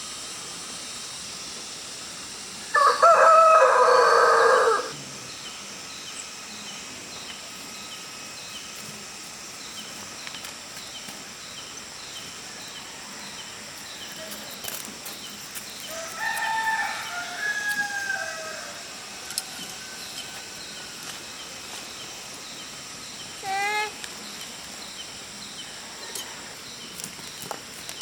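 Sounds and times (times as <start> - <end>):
rural background: 0.0 - 28.0
rooster crowing: 2.7 - 5.0, 15.8 - 21.0.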